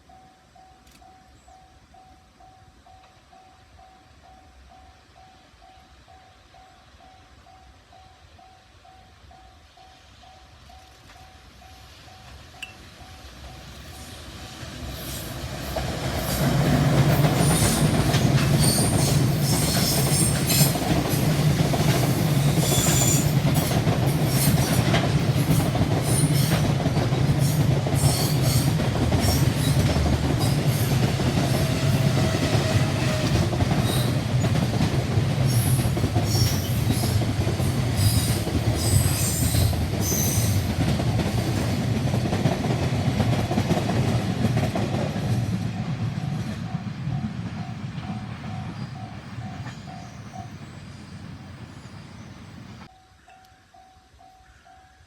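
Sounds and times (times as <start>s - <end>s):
train wheels rumbling on rails: 10.6s - 52.9s
wheels clickety-clack: 14.9s - 50.8s.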